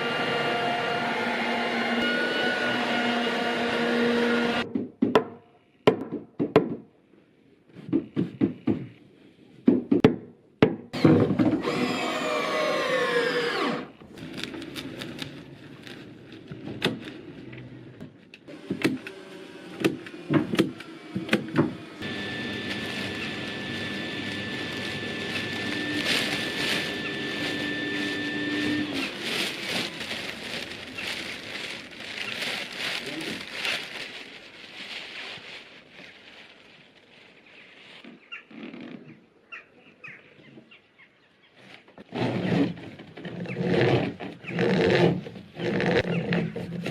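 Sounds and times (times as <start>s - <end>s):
power tool whining: 0.0s - 4.6s, 11.0s - 15.3s, 18.5s - 32.5s.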